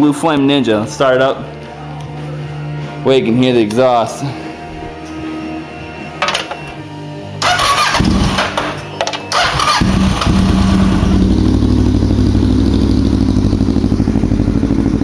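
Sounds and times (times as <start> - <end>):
motorcycle engine starting and idling: 7.4 - 15.0.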